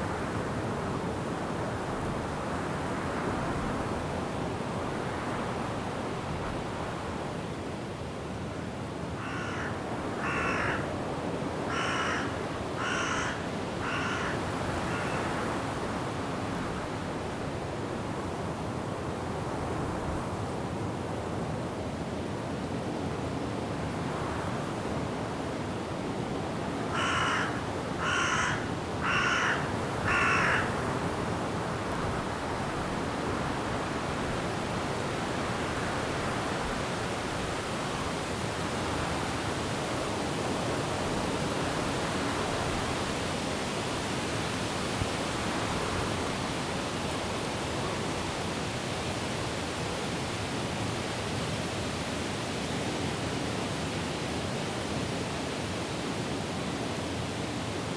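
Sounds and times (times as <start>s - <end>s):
wind rushing through trees: 0.0s - 57.9s
crow cawing: 9.2s - 10.9s, 11.7s - 15.3s, 26.9s - 30.8s.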